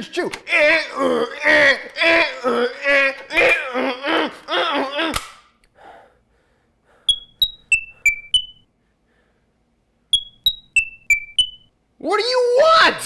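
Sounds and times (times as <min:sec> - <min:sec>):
high-pitched chirping beeps: 0:07.1 - 0:08.6, 0:10.2 - 0:11.7.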